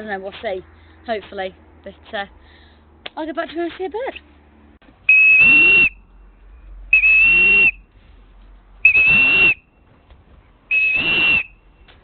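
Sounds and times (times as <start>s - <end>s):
high-pitched whistle blasts: 5.1s - 6.0s, 6.9s - 7.8s, 8.8s - 9.7s, 10.7s - 11.6s.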